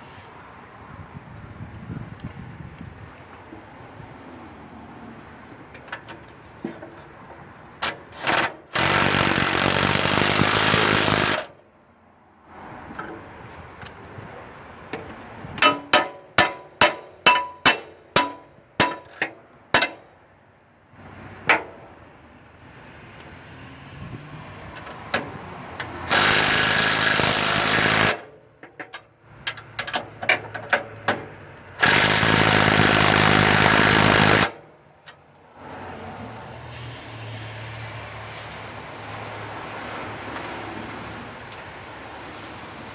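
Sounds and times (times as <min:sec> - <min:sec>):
power tool running: 0:08.2 - 0:11.5, 0:26.0 - 0:28.2, 0:31.8 - 0:34.6.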